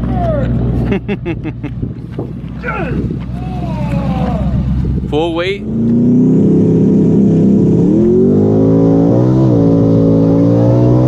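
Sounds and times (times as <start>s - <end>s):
drag car engine revving high: 3.5s - 11.0s.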